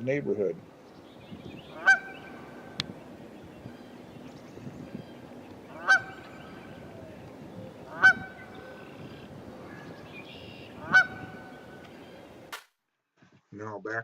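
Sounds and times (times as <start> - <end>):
geese honking: 1.6 - 12.5.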